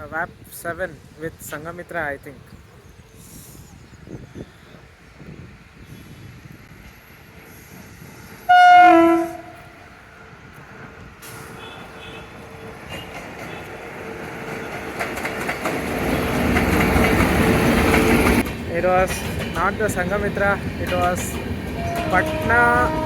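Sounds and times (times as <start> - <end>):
train rumbling on rails: 0.0 - 23.0
locomotive horn blast: 8.5 - 9.9, 21.8 - 23.0.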